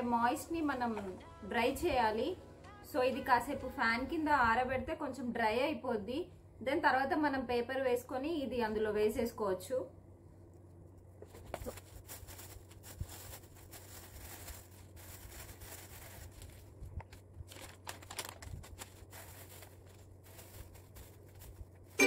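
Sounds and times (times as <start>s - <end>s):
low steady hum: 0.0s - 22.0s
paper rustling and crinkling: 11.2s - 22.0s.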